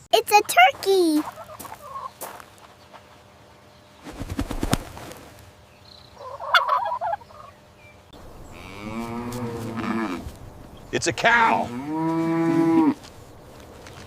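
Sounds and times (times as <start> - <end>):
turkey gobbling: 1.3 - 2.2, 6.2 - 7.6
cow mooing: 8.5 - 10.3, 11.5 - 13.0.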